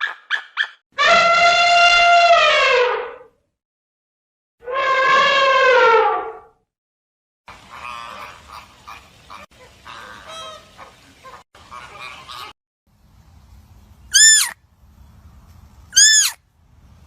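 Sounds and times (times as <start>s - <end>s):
loud animal call: 14.1s - 14.6s, 16.0s - 16.4s
shorter animal calls: 16.0s - 16.4s.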